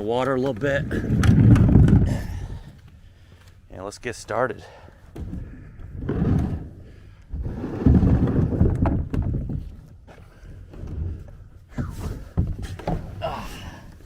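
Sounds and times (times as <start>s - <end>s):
kayak hull shifting: 5.1s - 14.0s.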